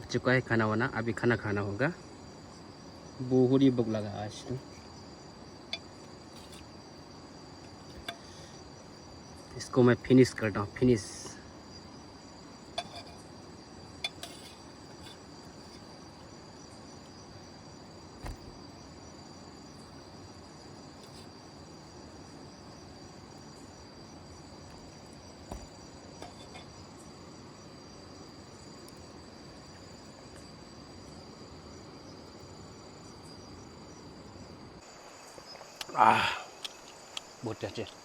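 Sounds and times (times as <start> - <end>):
insects chorus: 0.0 - 38.0
faint clinks and taps: 12.8 - 13.3, 25.5 - 26.8.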